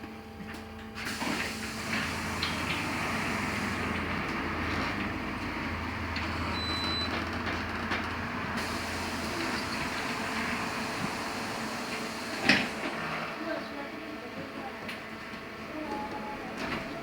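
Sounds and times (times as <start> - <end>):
tyre and road noise: 2.0 - 13.3.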